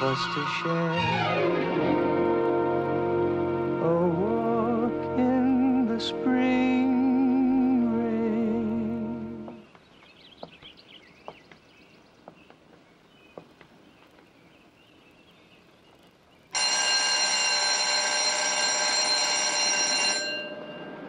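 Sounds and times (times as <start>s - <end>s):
loud bell ringing: 16.5s - 21.0s.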